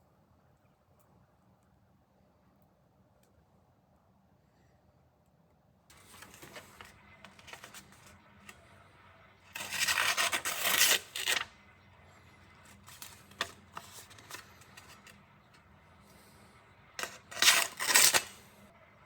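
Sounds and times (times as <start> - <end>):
knife blade scraping on abrasive: 17.0 - 18.4.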